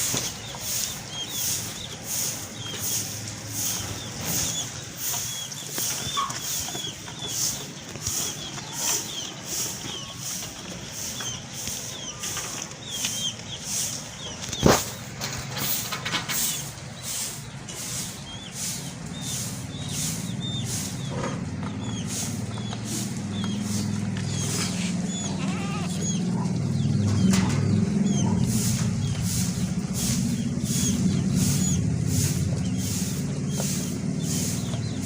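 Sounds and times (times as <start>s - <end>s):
goat bleating: 24.7s - 26.2s.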